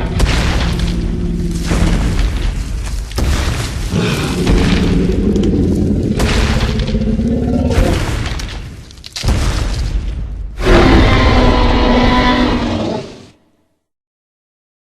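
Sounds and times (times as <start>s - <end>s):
dinosaur roars: 3.9s - 8.2s, 10.6s - 13.4s.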